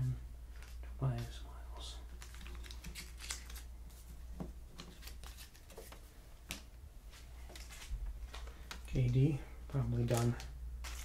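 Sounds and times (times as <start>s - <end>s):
cards being flipped by hand: 2.1s - 6.7s.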